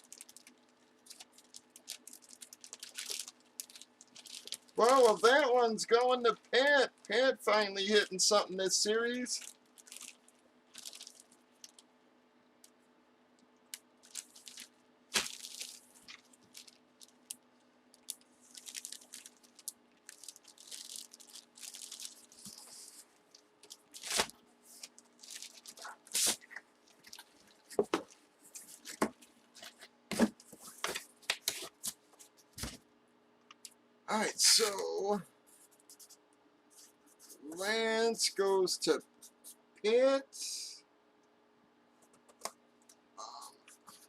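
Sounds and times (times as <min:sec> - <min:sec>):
cards and wrappers rustling: 0:00.0 - 0:08.1, 0:08.8 - 0:11.8, 0:14.0 - 0:17.4, 0:18.0 - 0:32.8
faint steady hum: 0:00.0 - 0:44.0.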